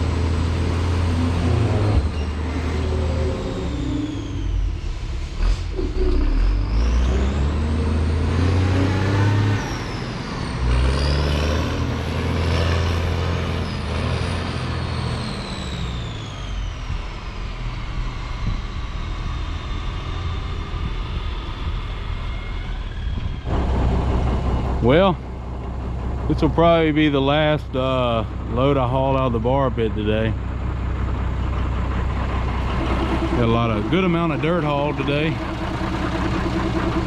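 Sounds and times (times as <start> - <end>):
heavy diesel machinery engine: 0.0 - 37.0
high whine: 32.0 - 37.0.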